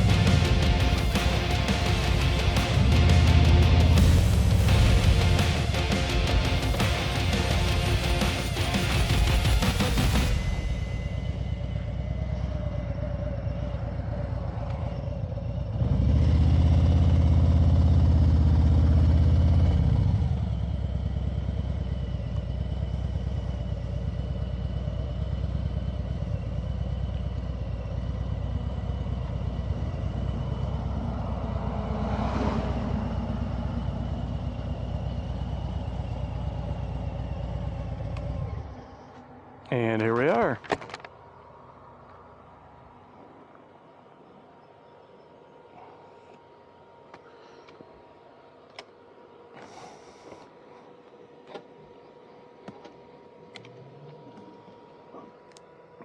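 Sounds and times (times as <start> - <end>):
motorcycle engine running: 0.0 - 40.5
road and wind noise: 0.0 - 56.0.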